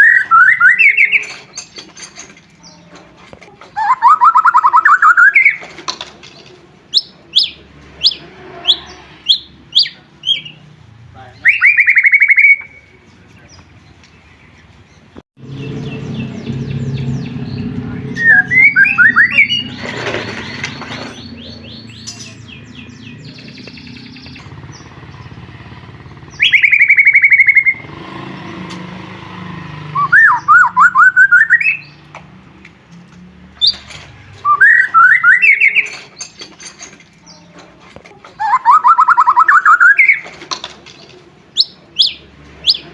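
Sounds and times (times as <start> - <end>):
bird singing rapid repeated notes: 0.0 - 2.9, 3.7 - 5.7, 6.3 - 32.1, 33.6 - 37.6, 38.4 - 40.4, 41.5 - 42.9
low hum: 15.4 - 27.8.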